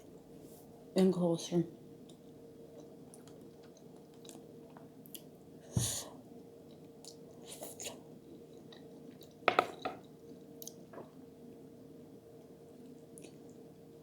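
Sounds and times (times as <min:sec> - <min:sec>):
faint steady hum: 0:00.0 - 0:14.0
dull knock: 0:09.5 - 0:10.0.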